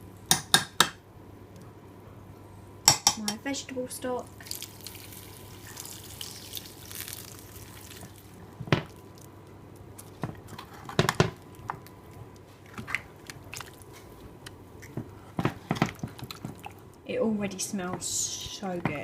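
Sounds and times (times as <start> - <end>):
liquid sloshing in a dish: 4.4 - 9.3, 12.5 - 14.2, 14.8 - 16.9.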